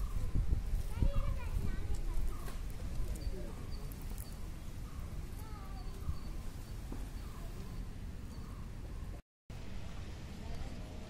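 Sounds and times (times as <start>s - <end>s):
small birds chirping: 0.0s - 9.2s
low wavering bird calls: 2.3s - 9.2s.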